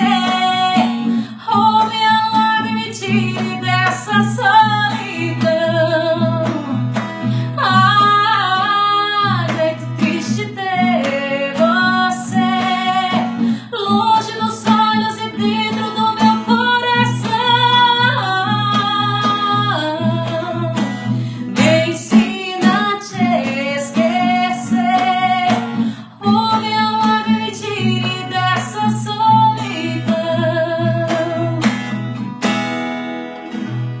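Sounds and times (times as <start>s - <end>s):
woman singing slow melody: 0.0s - 31.7s
acoustic guitar: 0.0s - 34.0s.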